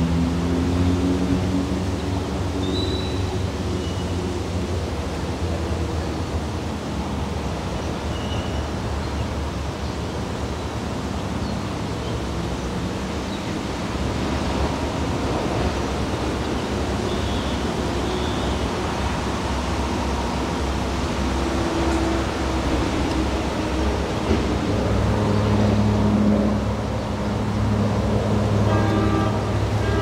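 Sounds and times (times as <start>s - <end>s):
train rushing noise: 0.0s - 30.0s.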